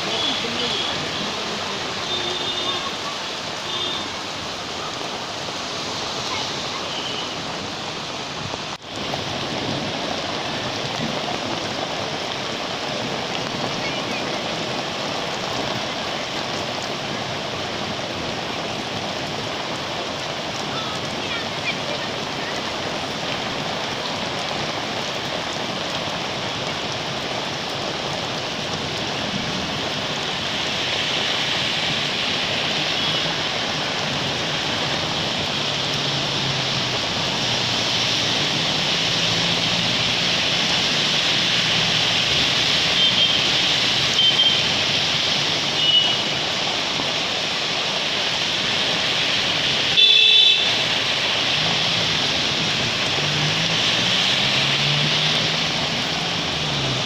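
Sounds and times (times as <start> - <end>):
rain hiss: 0.0 - 57.0
horn toots: 50.0 - 50.8.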